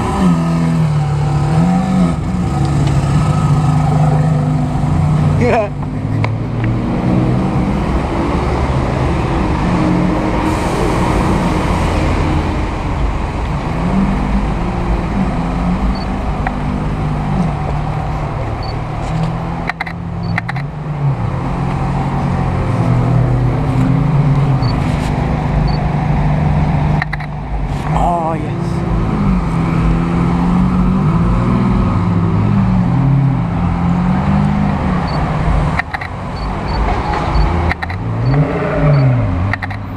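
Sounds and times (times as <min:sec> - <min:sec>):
traffic noise: 0:00.0 - 0:39.9
sharp clicks: 0:19.2 - 0:20.7, 0:27.0 - 0:27.4, 0:35.1 - 0:38.4, 0:39.5 - 0:39.8.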